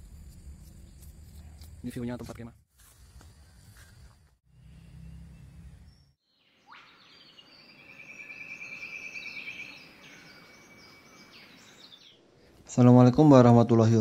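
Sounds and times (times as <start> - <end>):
bird calls and trills: 3.4 - 12.3.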